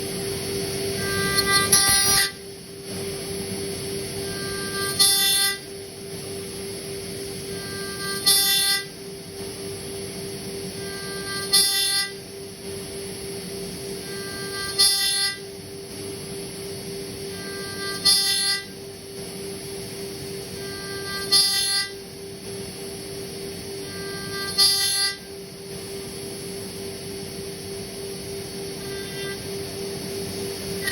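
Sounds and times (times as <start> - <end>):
spindle humming: 0.0 - 30.9
cutter ringing squeal: 0.4 - 2.5, 4.2 - 5.8, 7.4 - 9.0, 10.8 - 12.2, 14.0 - 15.5, 17.3 - 18.8, 20.6 - 22.0, 23.7 - 25.4, 28.7 - 29.9.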